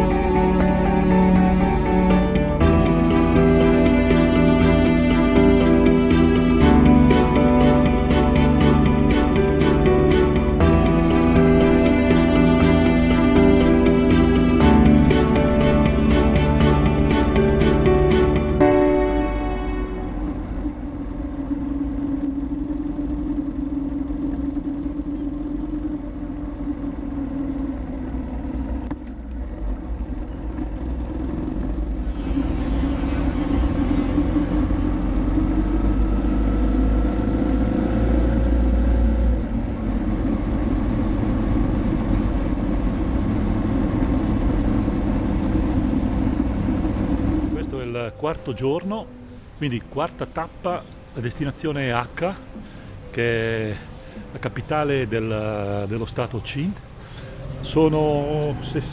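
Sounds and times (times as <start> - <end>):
motorcycle engine running: 0.0 - 32.2, 33.0 - 47.6
low rumble: 0.0 - 47.8.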